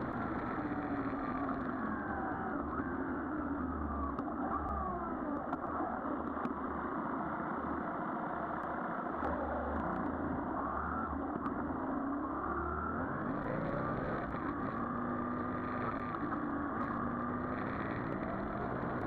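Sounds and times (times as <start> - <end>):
road noise: 11.2 - 19.0.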